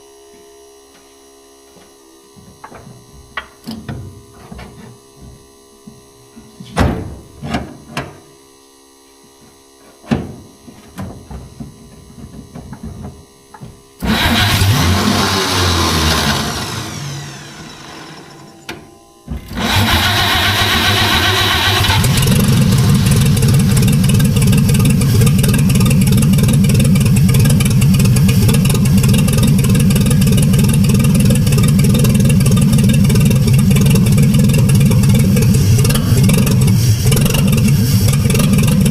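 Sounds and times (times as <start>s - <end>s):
truck engine running: 10.2s - 38.9s
starter cranking engine: 14.0s - 18.6s, 19.4s - 38.9s.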